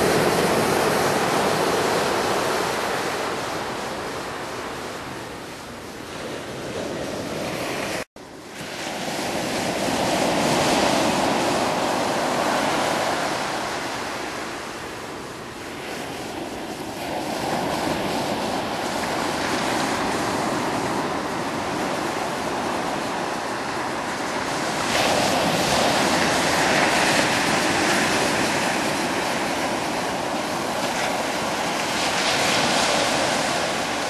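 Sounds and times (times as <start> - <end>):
surf breaking on a beach: 0.0 - 34.0.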